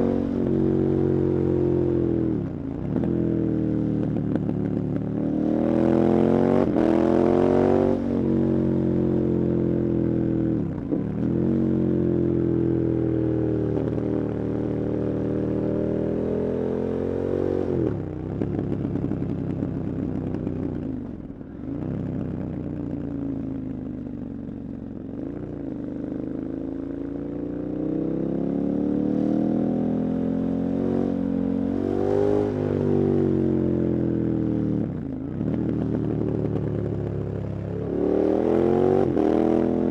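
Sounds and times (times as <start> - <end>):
motorcycle engine revving: 28.2 - 39.9.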